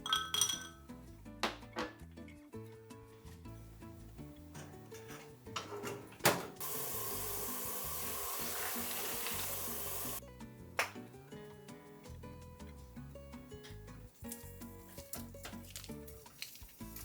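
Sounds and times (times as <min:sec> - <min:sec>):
soft background music: 0:00.0 - 0:17.0
water running into sink: 0:06.3 - 0:10.2.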